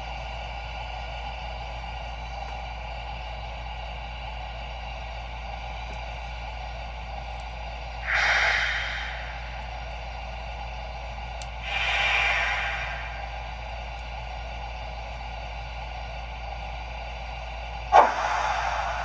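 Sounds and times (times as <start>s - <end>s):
steam hiss: 8.0s - 10.4s, 11.6s - 14.2s, 17.9s - 19.0s
steady hum: 8.0s - 10.6s, 11.5s - 14.9s, 17.9s - 19.0s.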